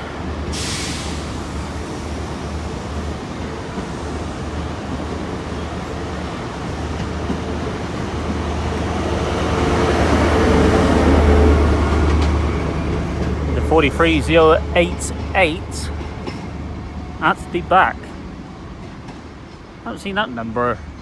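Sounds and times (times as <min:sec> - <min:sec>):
diesel train engine hum: 0:00.0 - 0:21.0
short hiss: 0:00.6 - 0:01.4.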